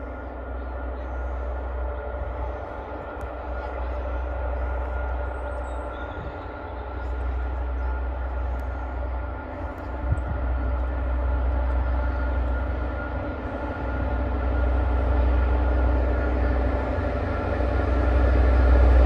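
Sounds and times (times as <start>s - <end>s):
diesel locomotive engine under load: 0.0s - 19.0s.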